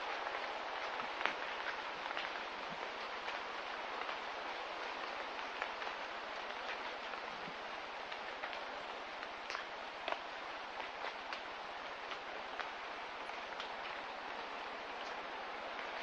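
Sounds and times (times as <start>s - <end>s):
light rain hissing: 0.0s - 16.0s.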